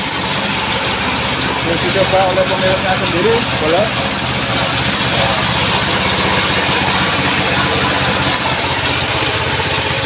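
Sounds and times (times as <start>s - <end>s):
band sawmill running: 0.0s - 10.0s.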